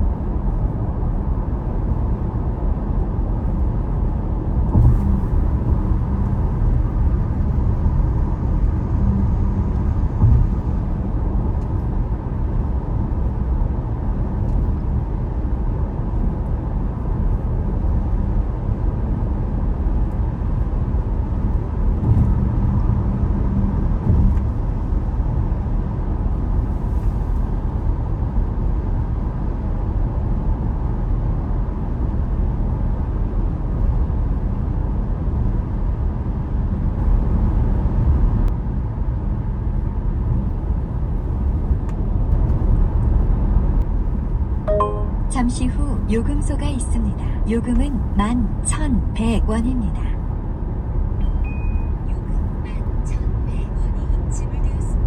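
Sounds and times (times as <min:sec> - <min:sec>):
vehicle road and engine noise: 0:00.0 - 0:44.6, 0:45.3 - 0:55.0
road bumps: 0:04.7 - 0:07.0, 0:09.7 - 0:11.8, 0:21.8 - 0:25.0.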